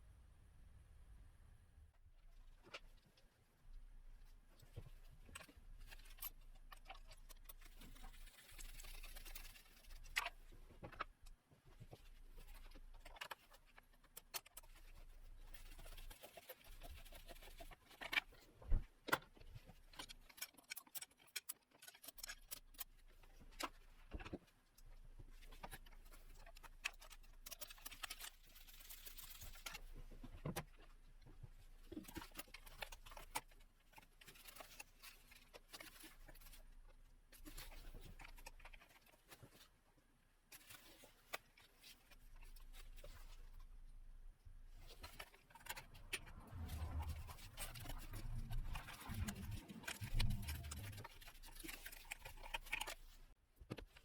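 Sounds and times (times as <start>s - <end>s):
low rumble: 45.8s - 51.5s.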